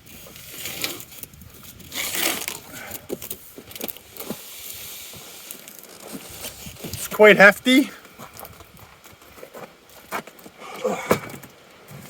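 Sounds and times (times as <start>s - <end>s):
scraping and rustling: 0.0s - 7.4s.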